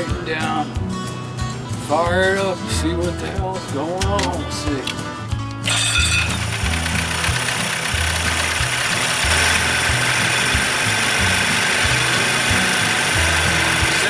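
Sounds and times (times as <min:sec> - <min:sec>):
outboard motor running: 0:05.7 - 0:14.0.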